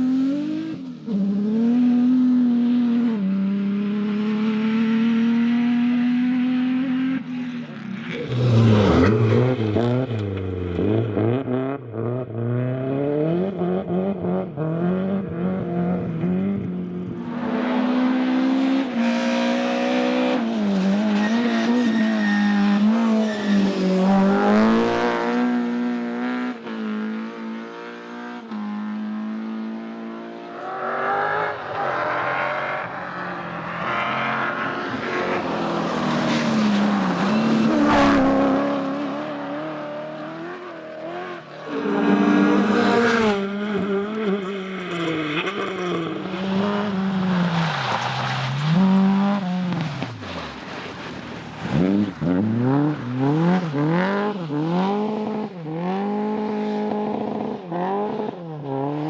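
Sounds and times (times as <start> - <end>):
rally car engines revving: 0.0 - 59.0
car passing by: 17.2 - 26.4, 30.2 - 54.9.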